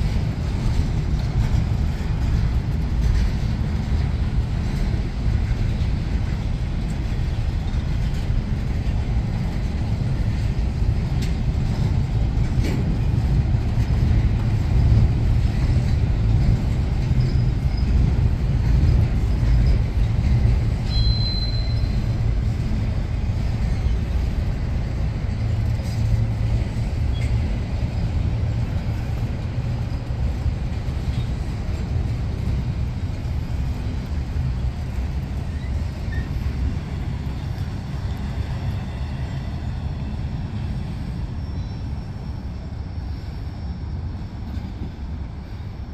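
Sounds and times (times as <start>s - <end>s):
train wheels rumbling on rail: 0.0s - 45.9s
high wheel squeal: 20.8s - 22.2s, 35.5s - 36.6s, 40.9s - 44.2s.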